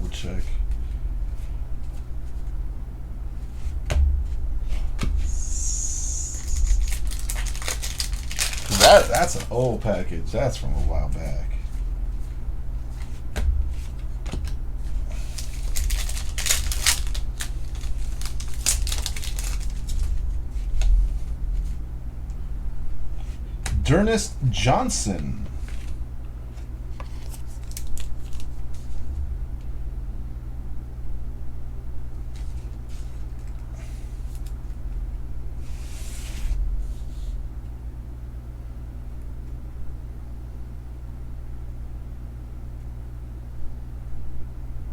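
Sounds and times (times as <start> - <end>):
steady low hum: 0.0 - 44.9
cards rustling and sliding: 4.7 - 9.7, 13.8 - 21.7
packaging crinkling and tearing: 6.3 - 9.7, 15.0 - 20.2, 27.0 - 29.0.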